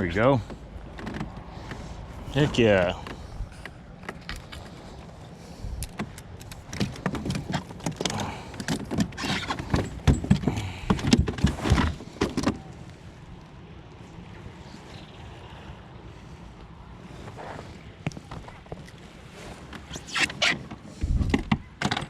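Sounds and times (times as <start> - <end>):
knocks and rattles of tackle: 5.8 - 13.0, 17.4 - 22.0.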